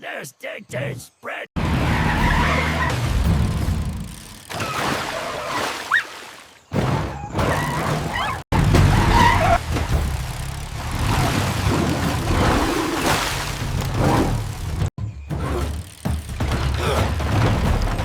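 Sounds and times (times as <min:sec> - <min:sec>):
vehicle engine rumble: 0:01.6 - 0:04.5, 0:08.1 - 0:18.0
mud and water splashing: 0:01.7 - 0:14.9.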